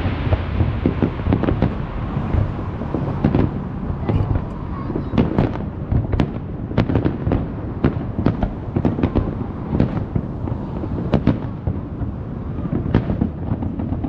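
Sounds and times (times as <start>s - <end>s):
low rumble: 0.0s - 12.8s
fireworks bangs: 0.0s - 14.0s.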